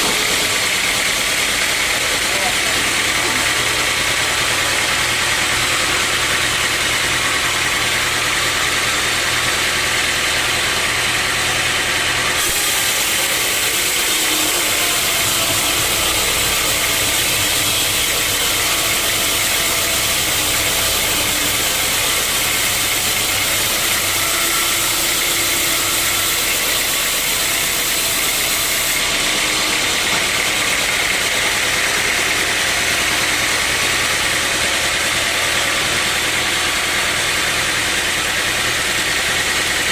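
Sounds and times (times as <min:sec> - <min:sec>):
sawmill saw and motor running: 0:00.0 - 0:39.9
saw blade hissing through log: 0:12.3 - 0:30.7.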